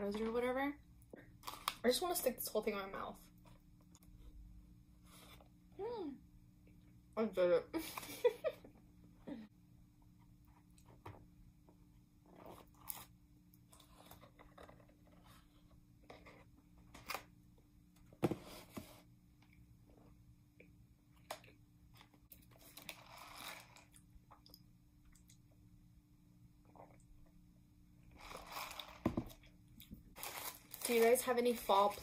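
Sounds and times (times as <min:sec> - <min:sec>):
faint chewing with mouth clicks: 0:20.6 - 0:25.5.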